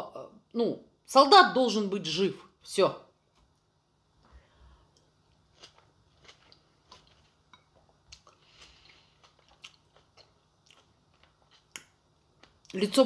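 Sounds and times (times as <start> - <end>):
person chewing wet smacks: 4.9 - 12.8.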